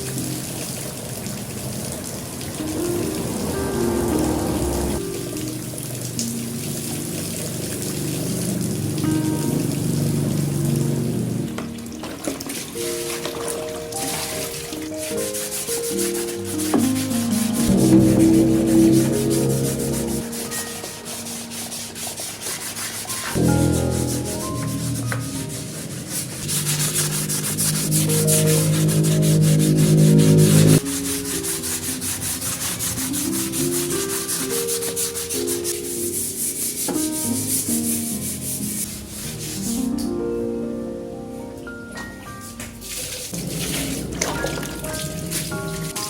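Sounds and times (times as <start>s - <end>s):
rapid scrubbing strokes: 2.5s - 5.2s, 12.6s - 39.9s, 42.8s - 46.0s
background music: 2.6s - 7.0s, 10.9s - 46.0s.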